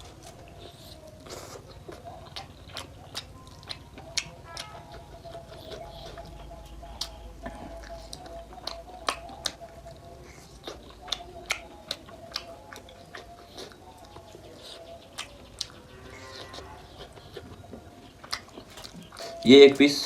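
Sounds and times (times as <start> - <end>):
chewing and biting meat: 0.0 - 19.5
mouth smacks and bone clicks: 0.2 - 6.4, 7.0 - 19.4.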